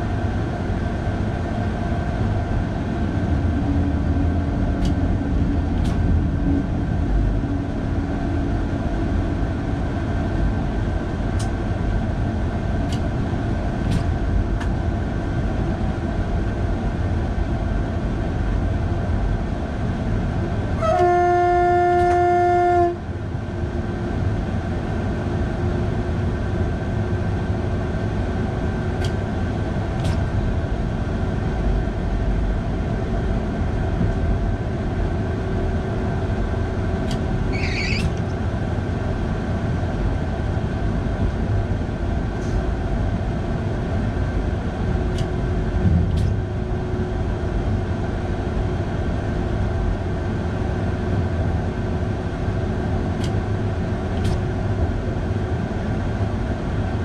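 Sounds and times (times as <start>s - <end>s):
train wheels rumbling on rail: 0.0s - 57.0s
high squeal: 37.5s - 38.3s.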